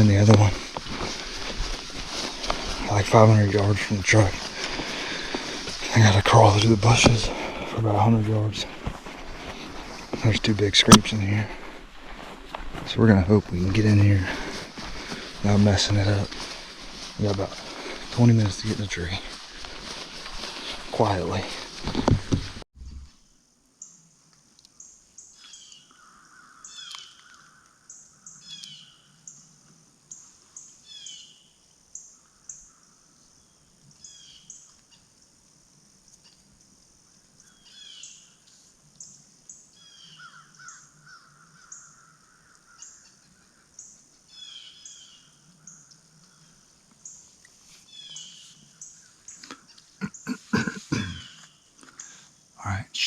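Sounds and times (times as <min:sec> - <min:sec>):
birds chirping: 0:00.0 - 0:24.1, 0:24.8 - 0:35.2, 0:36.0 - 0:53.0
lower bird calls: 0:24.8 - 0:35.1, 0:37.4 - 0:52.4.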